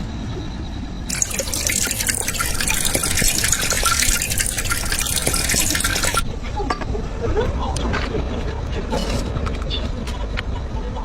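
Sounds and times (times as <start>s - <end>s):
water pouring and splashing: 1.1s - 6.2s.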